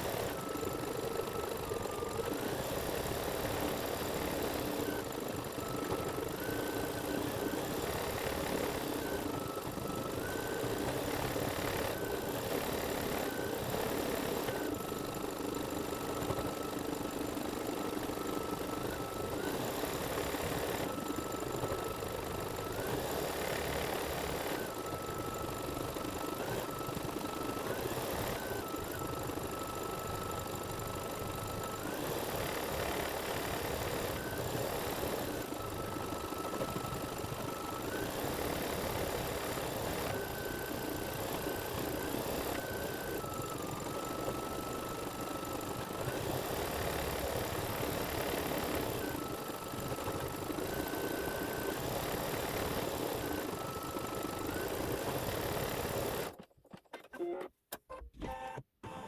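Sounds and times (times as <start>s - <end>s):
faint motor whine: 0.0s - 56.5s, 57.2s - 59.0s
embroidery machine stitching: 37.8s - 56.4s.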